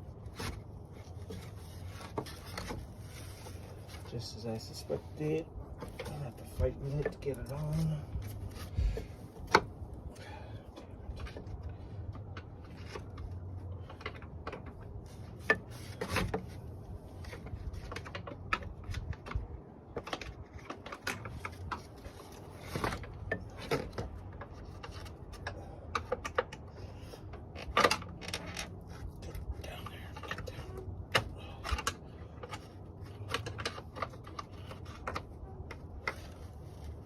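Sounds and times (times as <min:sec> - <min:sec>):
clicks knocks and rubbing of fan assembly: 0:05.7 - 0:09.8, 0:10.7 - 0:37.0.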